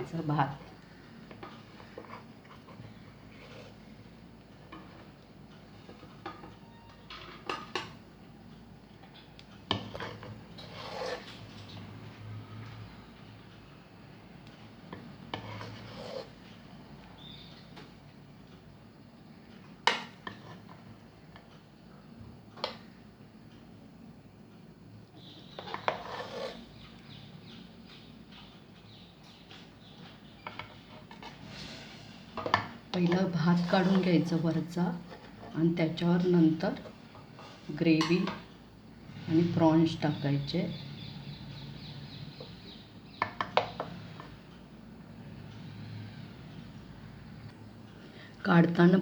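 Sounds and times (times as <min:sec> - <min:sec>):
spoon scraping cooking pot: 0:01.3 - 0:03.9, 0:09.7 - 0:11.8, 0:15.3 - 0:16.4, 0:25.2 - 0:26.8, 0:30.4 - 0:31.7, 0:32.3 - 0:35.6.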